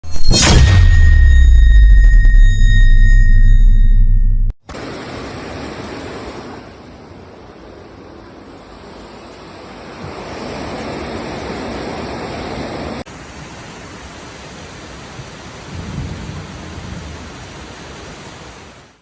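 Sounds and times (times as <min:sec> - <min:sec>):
floodwater rushing: 0:04.7 - 0:19.0.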